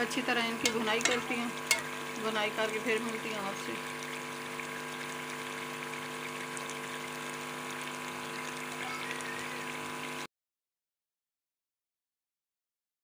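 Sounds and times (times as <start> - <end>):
food sizzling and bubbling in wok: 0.0 - 10.3.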